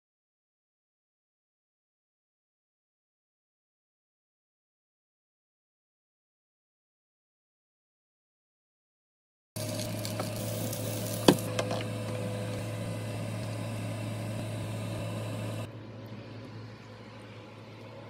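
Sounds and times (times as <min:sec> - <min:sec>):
patties sizzling in oil: 0:09.6 - 0:15.5
constant low hum: 0:09.6 - 0:18.0.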